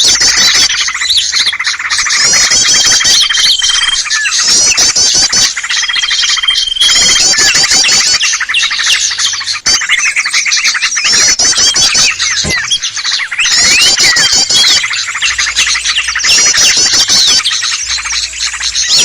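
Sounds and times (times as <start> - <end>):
small songbirds chirping and trilling: 0.0 - 19.0.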